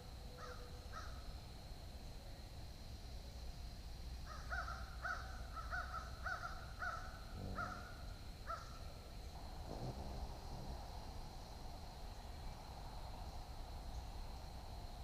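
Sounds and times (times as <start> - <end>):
bird calling: 0.3 - 1.2, 4.2 - 8.9.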